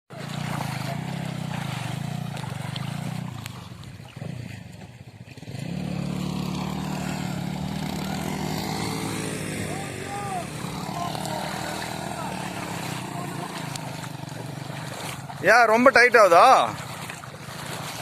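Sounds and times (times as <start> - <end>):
motorcycle engine running: 0.1 - 18.0.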